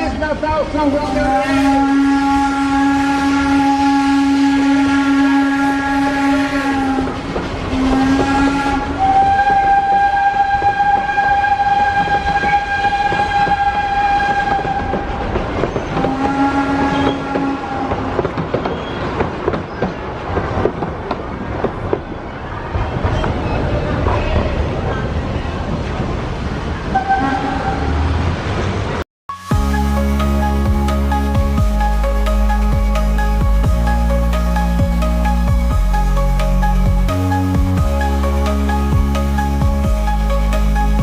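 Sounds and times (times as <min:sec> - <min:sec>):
passing train rumble and clatter: 0:00.0 - 0:41.0
train horn blasts: 0:00.9 - 0:15.3, 0:15.9 - 0:18.2, 0:26.9 - 0:28.0
wheels clicking over rail joints: 0:10.6 - 0:22.2.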